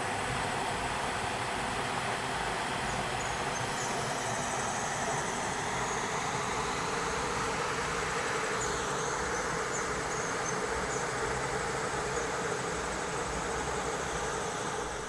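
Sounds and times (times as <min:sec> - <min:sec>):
background hiss: 0:00.0 - 0:15.0
crickets and insects chirping: 0:02.1 - 0:15.0.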